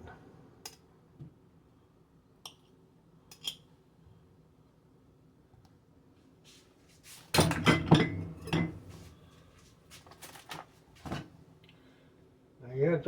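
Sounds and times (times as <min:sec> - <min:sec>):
kitchenware clattering: 0:07.4 - 0:09.0.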